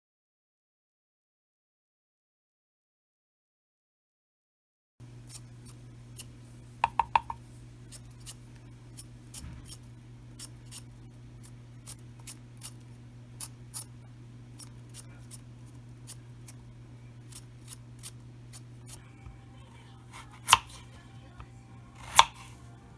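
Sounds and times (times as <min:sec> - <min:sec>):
blade scraping potatoes: 0:05.0 - 0:22.9
steady low hum: 0:05.0 - 0:22.9.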